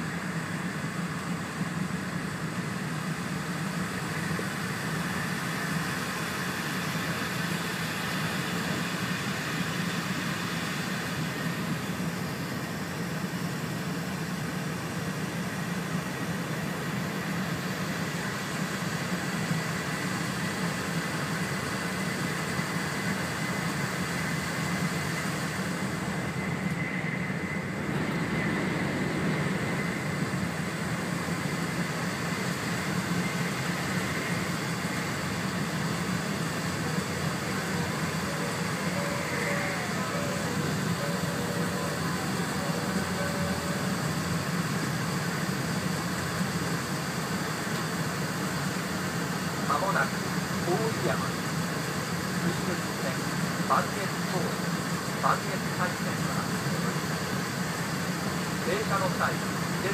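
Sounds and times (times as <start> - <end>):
train interior running hum: 0.0 - 59.9
rushing air: 25.1 - 46.6.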